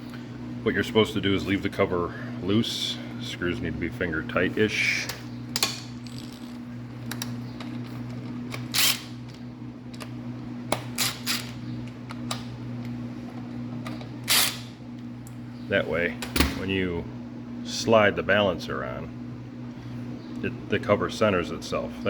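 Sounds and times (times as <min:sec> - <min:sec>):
steady low hum: 0:00.0 - 0:22.0
metal parts scraping: 0:07.8 - 0:09.2, 0:11.0 - 0:11.6, 0:14.2 - 0:14.7.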